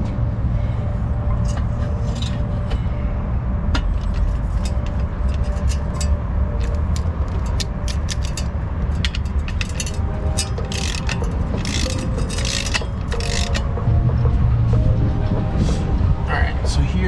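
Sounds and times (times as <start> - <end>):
steady low rumble: 0.0 - 17.0
ratchet wrench clicking: 4.0 - 13.9.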